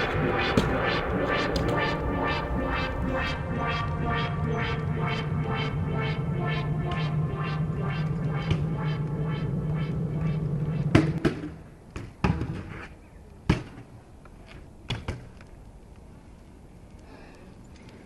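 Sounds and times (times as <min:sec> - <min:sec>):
electronic music with steady pulse: 0:00.0 - 0:11.2.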